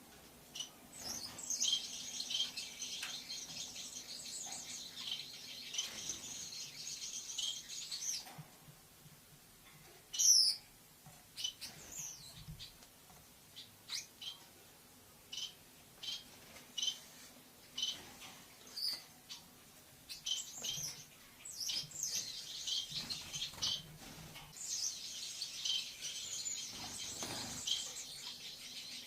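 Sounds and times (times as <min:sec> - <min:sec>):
lovebird chirping: 0:00.5 - 0:08.3, 0:10.1 - 0:10.6, 0:15.3 - 0:16.2, 0:20.1 - 0:23.9, 0:24.5 - 0:29.0.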